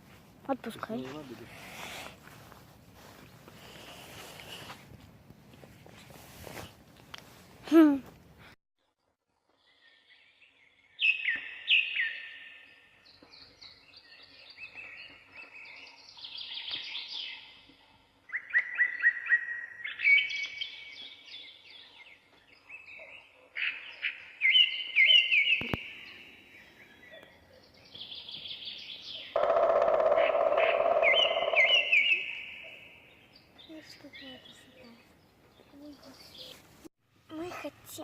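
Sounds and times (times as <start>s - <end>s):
songbirds singing: 9.5s - 36.7s.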